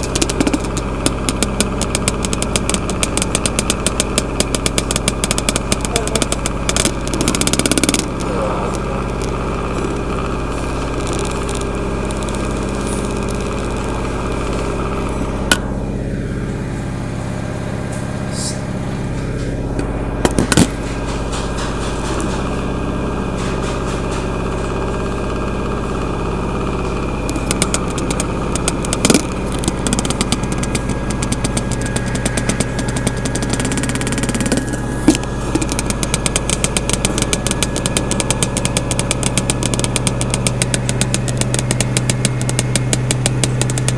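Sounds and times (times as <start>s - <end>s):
fast rattling tick: 0.0s - 15.6s, 27.1s - 43.9s
sharp knocks: 0.0s - 15.8s, 19.1s - 22.7s, 26.8s - 43.9s
washing machine spinning: 0.0s - 43.9s.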